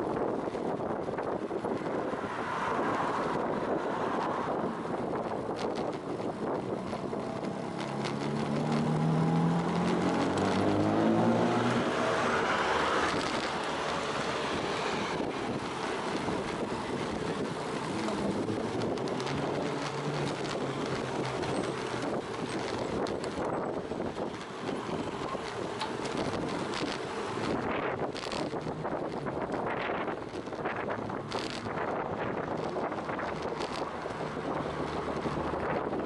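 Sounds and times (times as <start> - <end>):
wind rushing on microphone: 0.0 - 36.0
car engine accelerating: 6.4 - 29.9.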